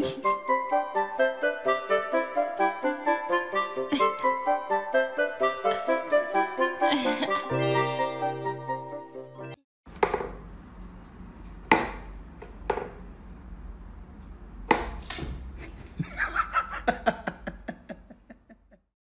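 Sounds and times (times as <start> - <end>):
wooden toy knocks: 10.0 - 10.4, 12.7 - 13.0.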